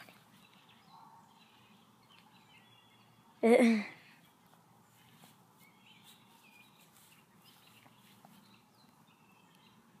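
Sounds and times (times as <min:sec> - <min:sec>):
faint distant bird chirps: 0:00.0 - 0:10.0.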